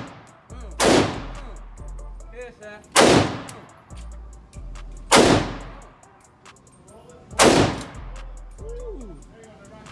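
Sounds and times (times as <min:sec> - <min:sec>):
gunshots with echo: 0:00.0 - 0:01.5, 0:03.0 - 0:03.6, 0:05.1 - 0:05.8, 0:07.4 - 0:08.0.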